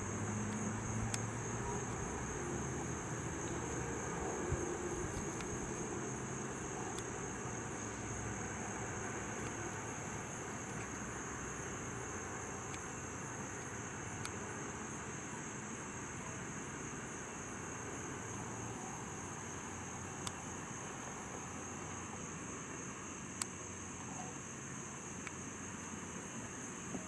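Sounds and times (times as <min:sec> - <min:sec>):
low outdoor rumble: 0:00.0 - 0:12.4
insects buzzing: 0:00.0 - 0:27.0.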